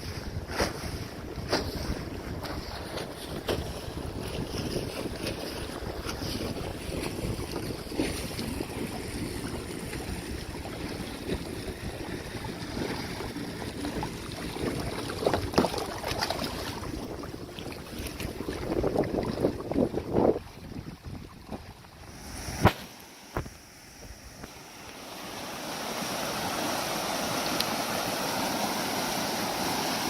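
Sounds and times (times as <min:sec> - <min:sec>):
wind buffeting microphone: 0:00.0 - 0:22.7
moving water: 0:00.0 - 0:30.0
splashes or knocks: 0:00.5 - 0:20.7.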